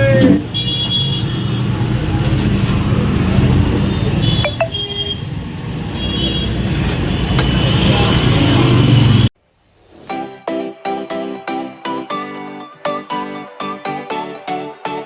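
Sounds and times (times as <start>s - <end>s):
road traffic rumble: 0.0s - 9.3s.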